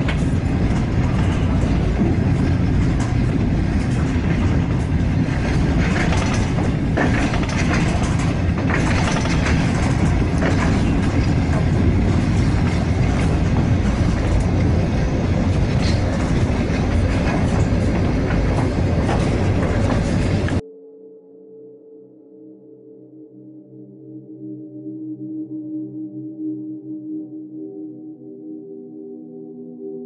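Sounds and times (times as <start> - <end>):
train rumble inside carriage: 0.0 - 20.6
wheels clacking on rails: 0.0 - 20.6.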